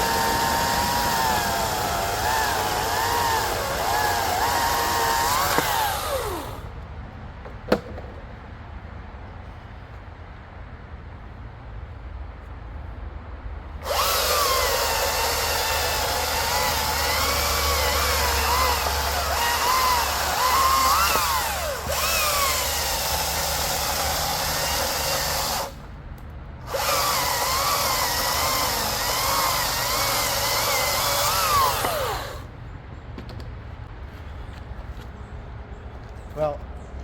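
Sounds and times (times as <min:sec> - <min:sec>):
electric chainsaw cutting log: 0:00.0 - 0:06.7, 0:13.8 - 0:25.8, 0:26.7 - 0:32.5.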